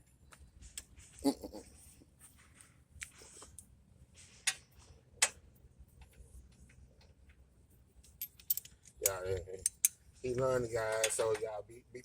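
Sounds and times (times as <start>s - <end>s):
metallic clicks of hand tools: 8.0s - 10.0s.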